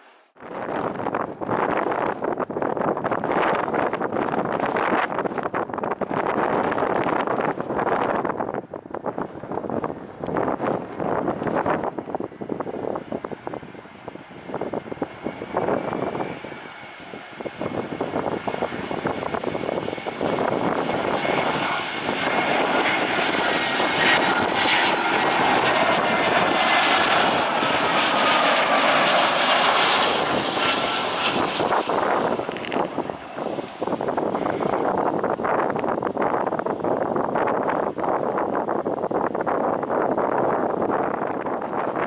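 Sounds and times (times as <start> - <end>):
jet airliner engine whine: 0.0 - 42.0
wind buffeting microphone: 0.0 - 42.0.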